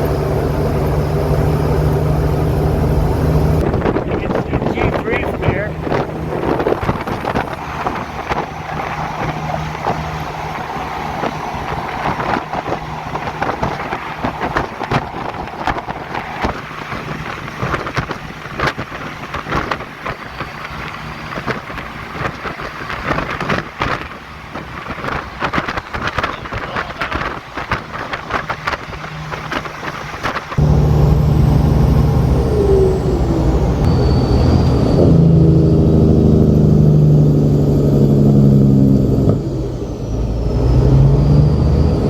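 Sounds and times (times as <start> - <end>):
faint low engine hum: 0.0 - 18.1, 23.1 - 42.0
wind buffeting microphone: 0.1 - 37.3.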